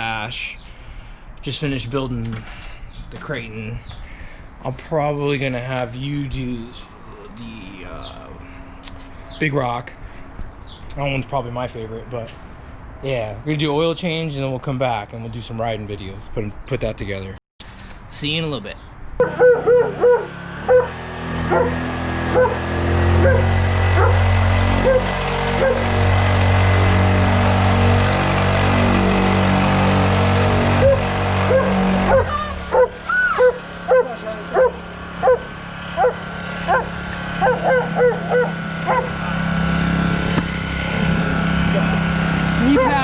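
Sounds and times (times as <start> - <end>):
dog barking: 19.2 - 20.9, 21.5 - 22.6, 23.2 - 24.2, 24.8 - 25.8, 31.5 - 39.1
engine humming: 19.2 - 43.0.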